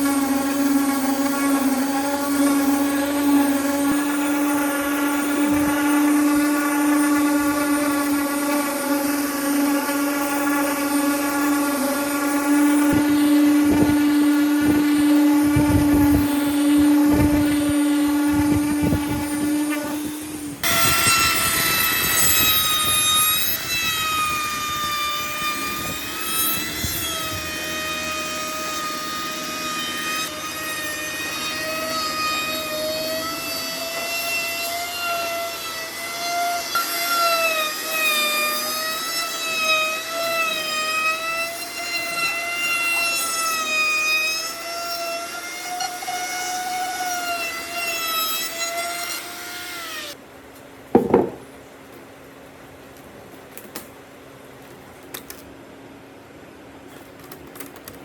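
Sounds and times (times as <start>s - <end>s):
power tool whining on wood: 0.0s - 50.2s.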